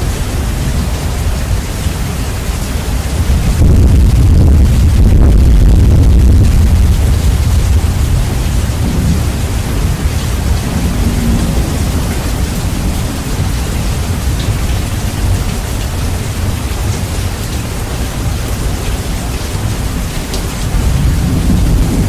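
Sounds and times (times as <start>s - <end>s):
deep thunder rumble: 0.0s - 22.0s
steady rain: 0.0s - 22.0s.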